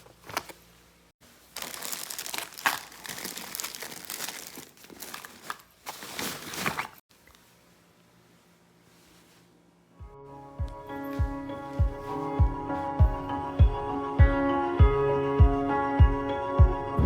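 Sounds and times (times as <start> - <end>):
crinkling and rustling: 0.0 - 7.7.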